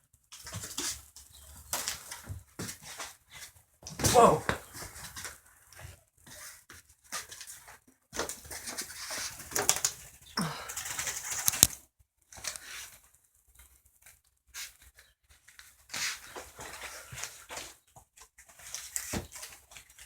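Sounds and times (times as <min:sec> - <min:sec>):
bird wings fluttering: 0:10.8 - 0:11.8.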